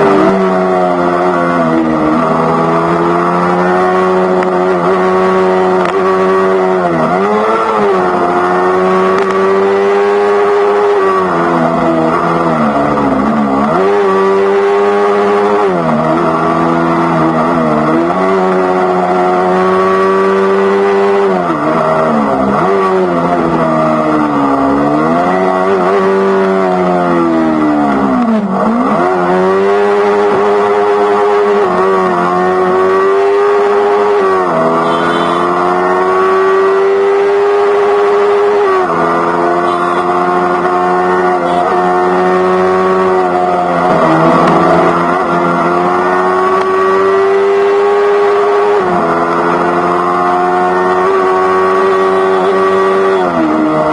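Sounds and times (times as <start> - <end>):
motorcycle engine revving while riding: 0.0 - 53.9.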